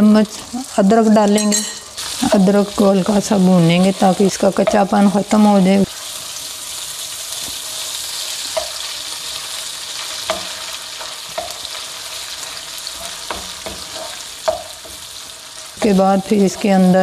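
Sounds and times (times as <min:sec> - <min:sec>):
ginger sizzling in hot ghee: 0:00.0 - 0:17.0
wooden spoon knocking on pan: 0:04.6 - 0:05.1, 0:10.3 - 0:10.6, 0:13.0 - 0:15.0.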